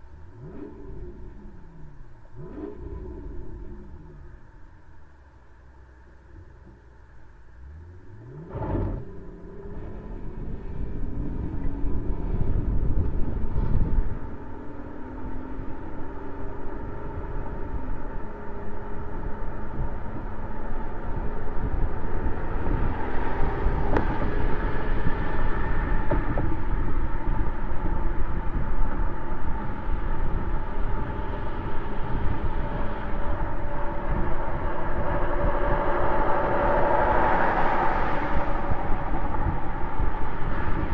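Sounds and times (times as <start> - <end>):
car exhaust while driving: 0.0 - 40.9
road noise: 0.0 - 40.9
wind noise: 8.3 - 40.9.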